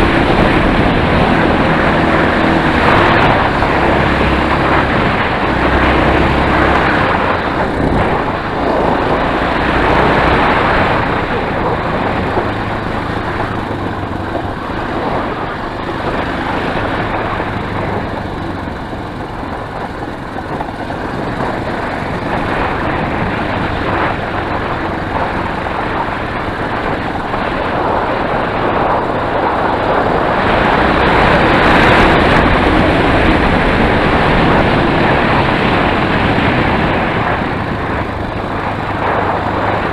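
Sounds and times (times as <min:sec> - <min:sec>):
motorcycle engine running: 0:00.0 - 0:39.9
steady rushing noise: 0:00.0 - 0:39.9.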